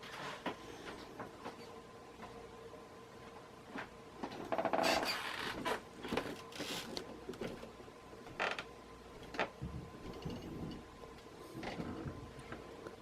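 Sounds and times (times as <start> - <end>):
ceiling fan motor hum: 0.0 - 13.0
fan creaks and clicks: 3.8 - 13.0.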